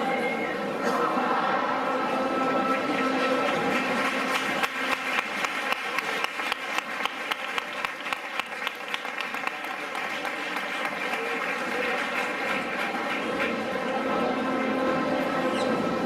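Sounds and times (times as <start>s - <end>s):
crowd applauding: 1.4s - 14.1s.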